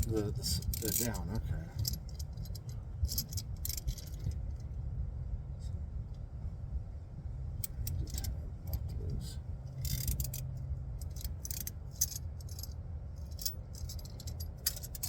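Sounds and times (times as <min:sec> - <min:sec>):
ratchet clicking and rattling: 0:00.0 - 0:04.5, 0:07.6 - 0:09.0, 0:09.7 - 0:15.0
steady low rumble: 0:00.0 - 0:15.0.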